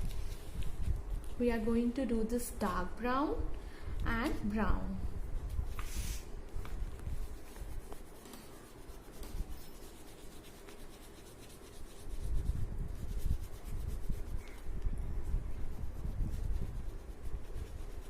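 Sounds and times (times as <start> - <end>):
crayon rubbing on paper: 7.1 - 14.7, 15.5 - 18.0.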